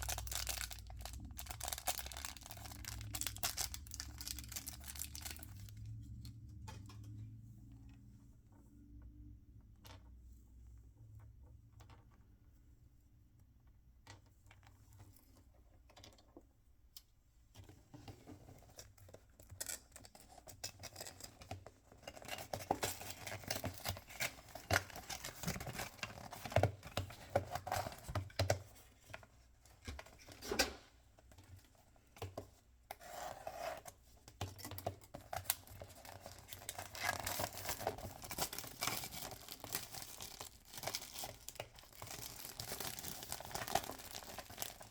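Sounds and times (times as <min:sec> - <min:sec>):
packaging torn and crinkled: 0:00.0 - 0:05.8, 0:35.5 - 0:44.9.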